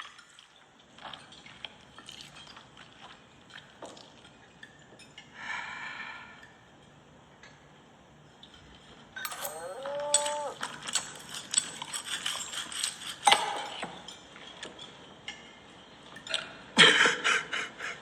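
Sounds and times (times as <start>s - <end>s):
sharp clicks and clinks: 9.2s - 15.4s
cow mooing: 9.5s - 10.6s.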